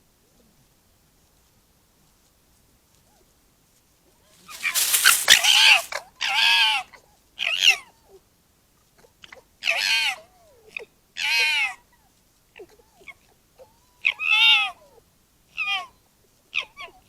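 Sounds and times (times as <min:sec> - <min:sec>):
foxes squealing: 0:04.4 - 0:05.9.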